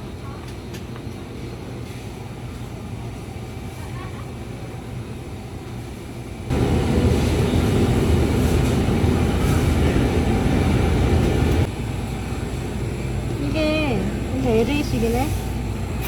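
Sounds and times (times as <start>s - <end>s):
loud rumbling noise: 6.5s - 13.2s.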